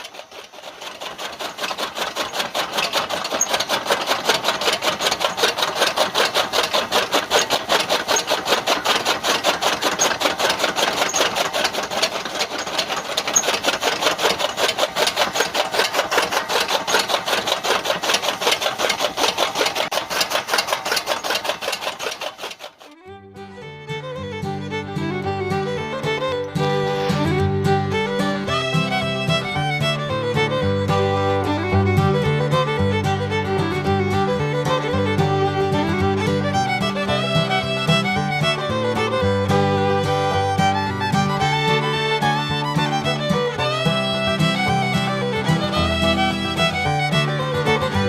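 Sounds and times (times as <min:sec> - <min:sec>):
small motorised mechanism clattering: 0:00.0 - 0:23.1.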